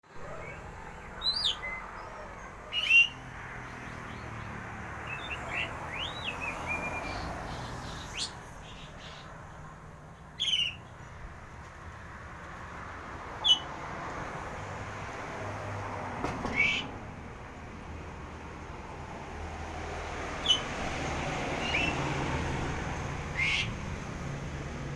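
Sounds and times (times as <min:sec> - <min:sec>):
sharp sweeping bird calls: 0:00.2 - 0:11.1, 0:13.4 - 0:13.8, 0:16.5 - 0:17.0, 0:20.4 - 0:20.8, 0:21.4 - 0:22.2, 0:23.3 - 0:23.8
soft bird chirps: 0:00.4 - 0:03.2, 0:10.2 - 0:11.0.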